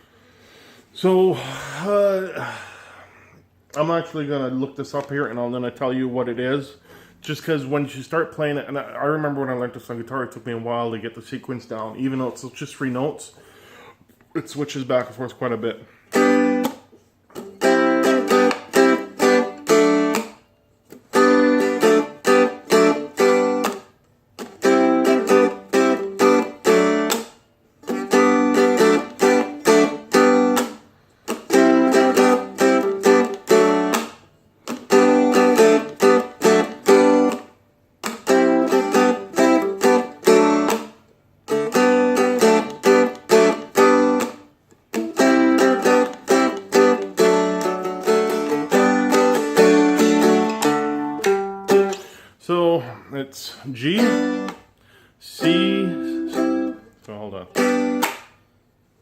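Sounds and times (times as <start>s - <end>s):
dulcimer strummed in chords: 55.4s - 56.8s.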